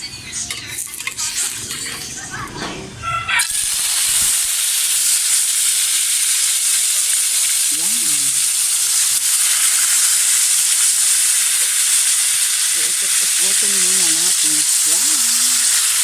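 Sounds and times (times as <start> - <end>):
fish frying in oil: 3.4 - 16.0.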